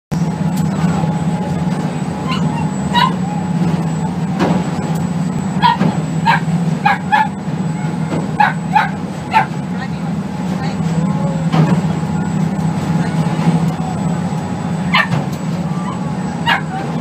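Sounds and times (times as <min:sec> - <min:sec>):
boat engine hum: 0:00.1 - 0:17.0
dog yipping: 0:02.2 - 0:03.3, 0:05.6 - 0:07.4, 0:08.4 - 0:09.5, 0:14.9 - 0:15.2, 0:15.8 - 0:16.9.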